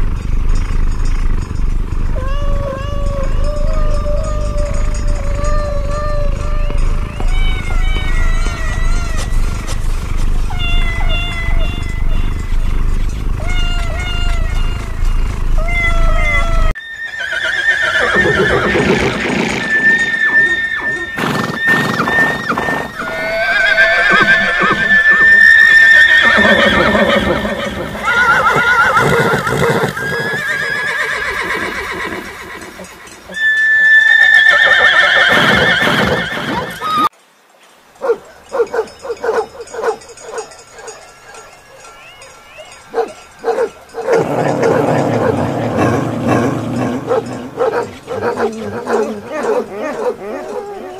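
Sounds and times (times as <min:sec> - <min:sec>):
horses neighing: 0:02.0 - 0:37.1, 0:41.4 - 0:50.9
kitten meowing: 0:02.2 - 0:09.7, 0:10.5 - 0:12.3, 0:13.4 - 0:14.9, 0:15.6 - 0:16.8.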